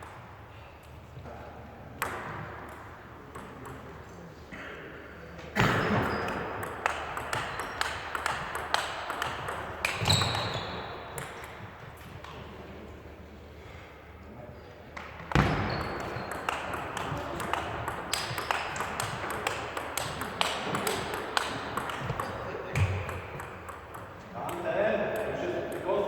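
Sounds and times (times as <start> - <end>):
table tennis ball hits: 2.0 - 3.9, 5.6 - 11.6, 15.2 - 26.0.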